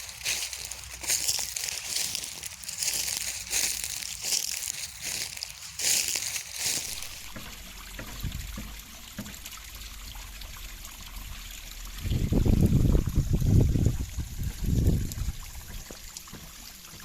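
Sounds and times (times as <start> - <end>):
short rustling bursts: 0.0 - 7.4
river water flowing over rocks: 0.0 - 8.0.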